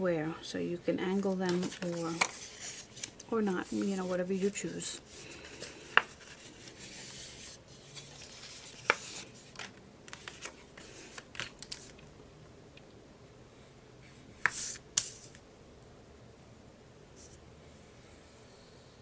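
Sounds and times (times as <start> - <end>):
paper sheets rustling and sliding: 1.2 - 12.0, 14.4 - 15.4.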